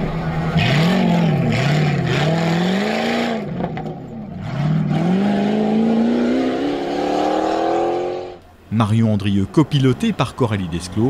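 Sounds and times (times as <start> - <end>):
car engine accelerating: 0.0 - 8.4.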